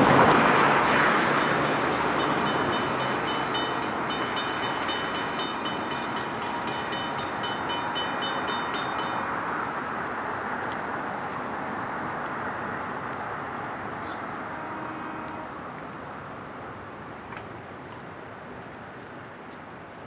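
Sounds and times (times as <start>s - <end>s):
train rolling away: 0.0s - 9.3s
crossing bell ringing: 0.0s - 9.8s.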